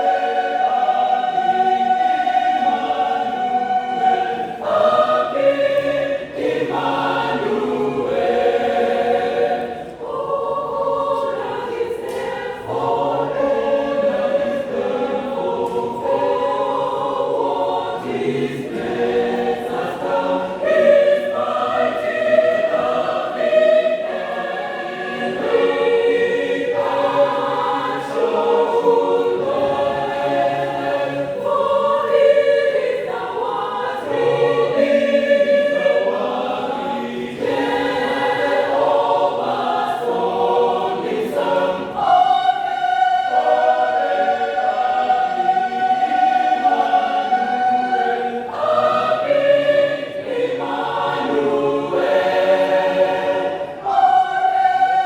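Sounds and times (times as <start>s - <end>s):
mixed choir singing a hymn: 0.0s - 55.0s.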